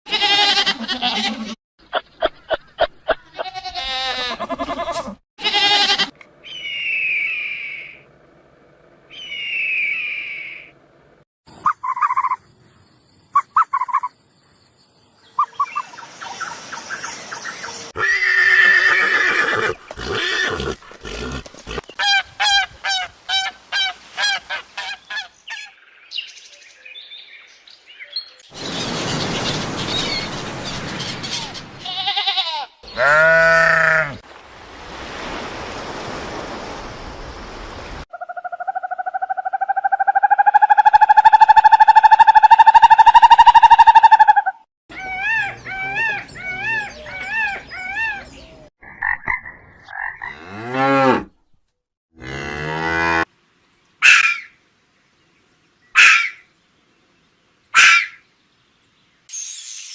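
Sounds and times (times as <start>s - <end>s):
animal calls: 38.1s - 48.4s, 54.0s - 54.6s, 56.0s - 56.4s, 57.8s - 58.2s.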